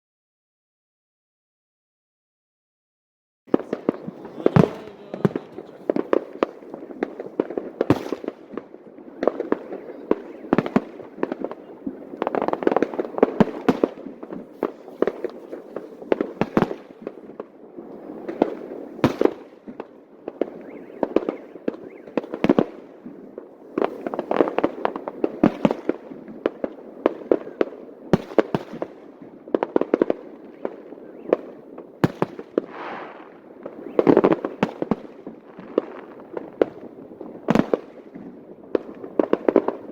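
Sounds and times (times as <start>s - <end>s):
fireworks bursting: 3.5s - 39.9s.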